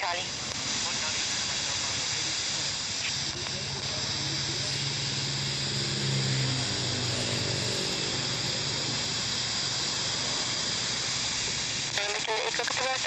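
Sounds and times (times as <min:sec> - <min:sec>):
radio static hiss: 0:00.0 - 0:13.0
low hum: 0:03.0 - 0:12.0.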